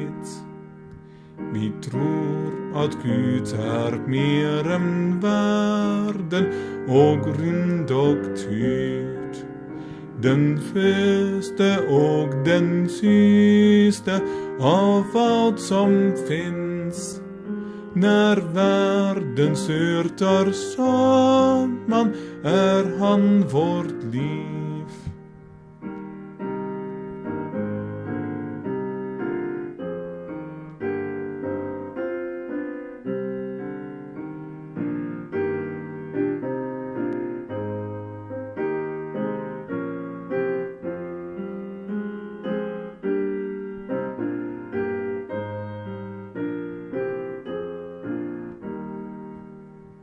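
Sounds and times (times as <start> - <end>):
solo piano: 0.0 - 50.0.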